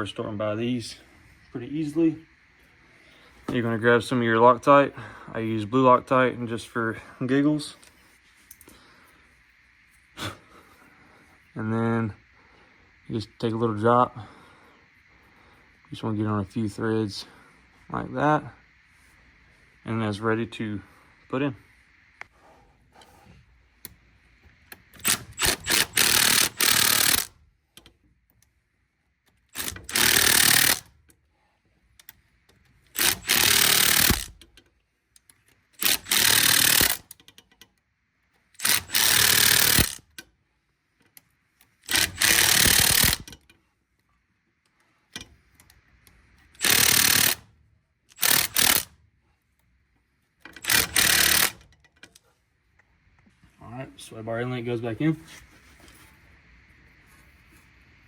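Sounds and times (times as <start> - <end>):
impact wrench running in bursts: 25.0 - 27.4, 29.5 - 30.9, 33.0 - 34.4, 35.8 - 37.1, 38.6 - 40.1, 41.8 - 43.3, 46.6 - 47.5, 48.1 - 48.9, 50.6 - 51.7
impact wrench trigger blips: 33.0 - 34.6, 35.8 - 37.6, 38.6 - 40.3, 41.9 - 43.5, 46.5 - 47.5, 50.6 - 51.7.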